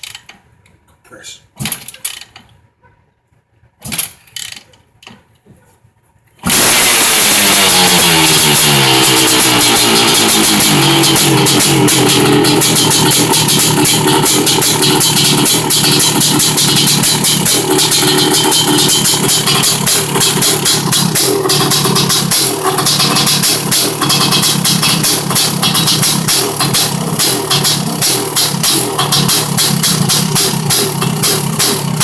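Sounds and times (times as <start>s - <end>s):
two-stroke motorcycle engine revving: 6.4s - 32.0s.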